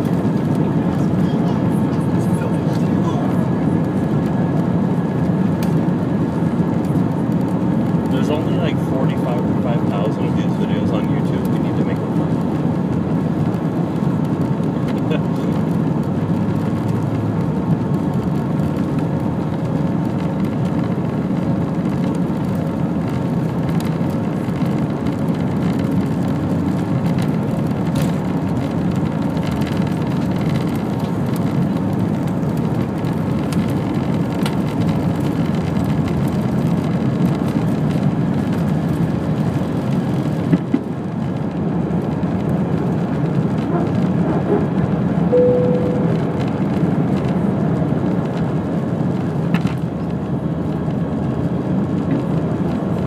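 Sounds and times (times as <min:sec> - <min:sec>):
jet engines rushing in cabin: 0:00.0 - 0:53.0
brief tone: 0:45.3 - 0:46.6.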